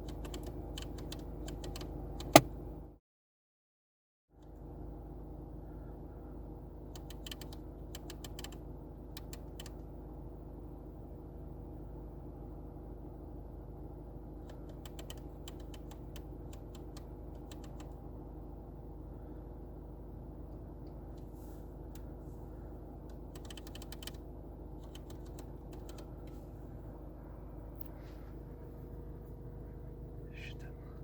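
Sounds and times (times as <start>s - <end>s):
typing on a keyboard: 0.0s - 2.4s, 7.0s - 8.6s, 9.2s - 9.8s, 14.5s - 17.9s, 23.3s - 24.2s, 24.8s - 26.1s
steady low hum: 4.4s - 31.0s.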